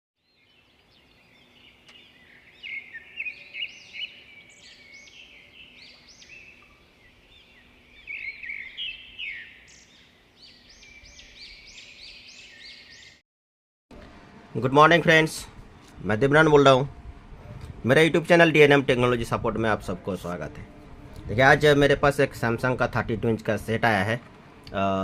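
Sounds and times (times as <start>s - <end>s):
small birds chirping: 0.2s - 13.2s.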